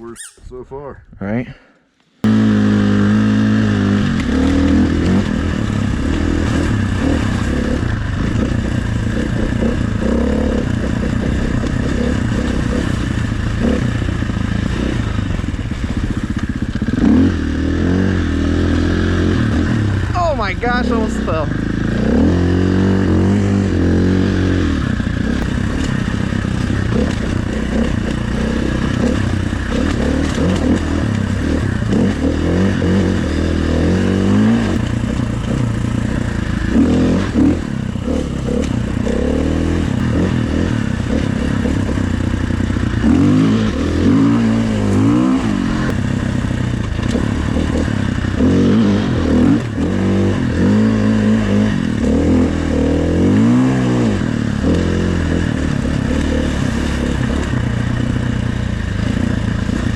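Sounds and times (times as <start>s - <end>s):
dirt bike engine revving: 2.2s - 59.9s.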